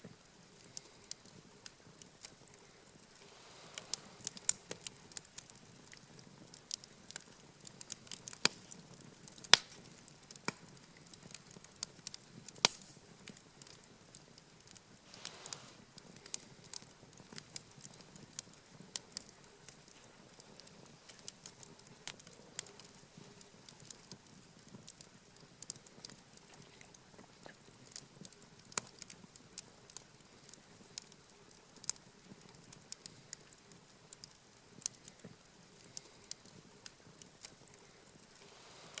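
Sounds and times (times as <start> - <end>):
campfire crackling: 0.0 - 39.0
faint low hiss: 0.0 - 39.0
pops and snaps of burning wood: 0.1 - 39.0.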